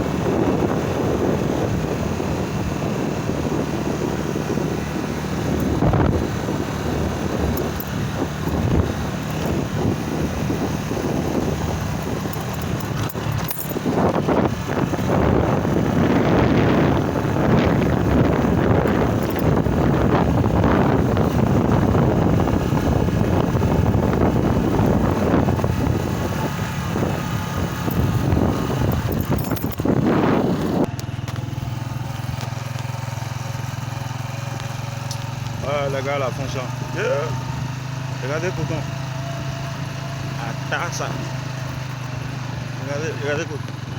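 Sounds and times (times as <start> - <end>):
rough buffeting: 0.0 - 43.9
small vehicle engine running: 0.0 - 43.9.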